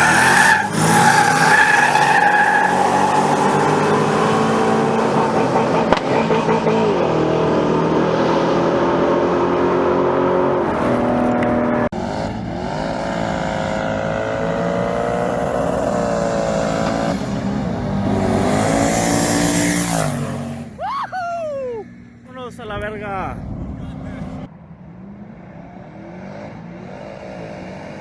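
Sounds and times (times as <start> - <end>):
engine at full throttle: 0.0 - 20.8.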